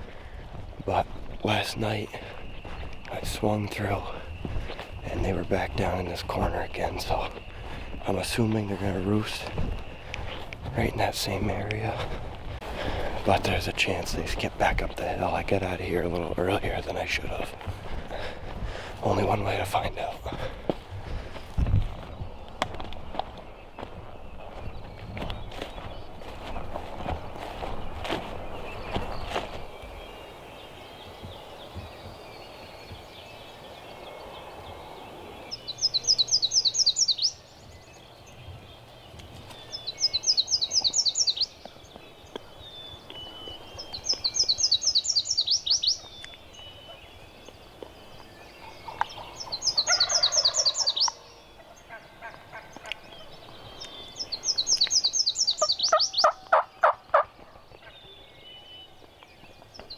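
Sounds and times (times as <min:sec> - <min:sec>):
turkeys gobbling: 0:48.5 - 0:54.9, 0:55.6 - 0:57.9.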